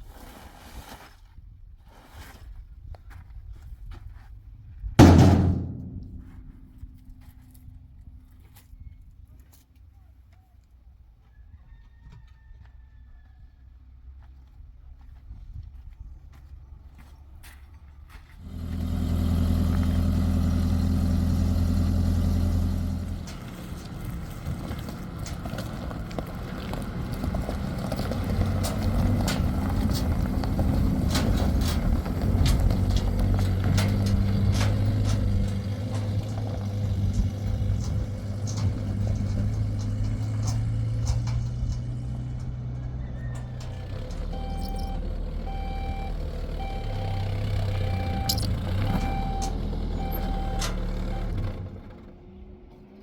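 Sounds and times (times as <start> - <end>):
engine humming: 5.0 - 9.3, 16.3 - 53.0.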